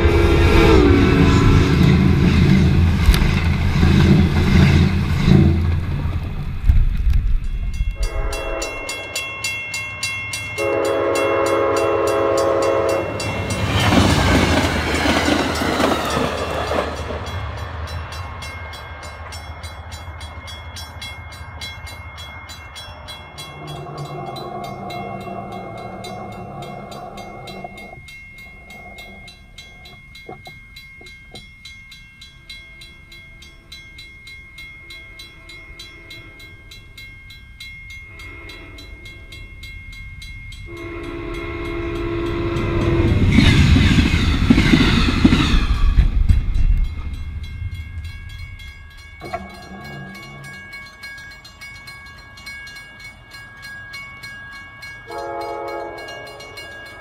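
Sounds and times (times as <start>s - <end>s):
train horn blasts: 0.0s - 4.6s, 8.0s - 9.2s, 10.6s - 13.4s, 23.4s - 29.4s, 34.8s - 36.7s, 38.1s - 39.4s, 40.7s - 43.4s, 49.2s - 51.0s, 55.0s - 56.8s
crossing bell ringing: 0.0s - 6.1s, 7.3s - 57.0s
train passing: 0.0s - 57.0s.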